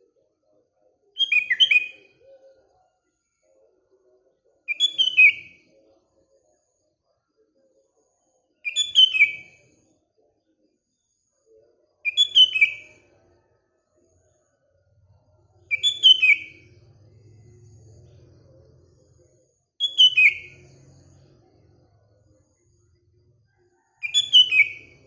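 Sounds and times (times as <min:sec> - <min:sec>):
bulbul singing: 0:01.2 - 0:02.1, 0:04.7 - 0:05.5, 0:08.7 - 0:09.6, 0:12.1 - 0:13.0, 0:15.7 - 0:18.9, 0:19.8 - 0:21.8, 0:24.0 - 0:25.0.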